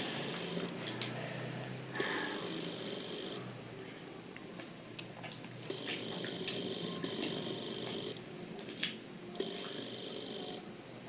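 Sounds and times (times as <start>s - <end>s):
wet chewing sounds: 4.4s - 9.8s.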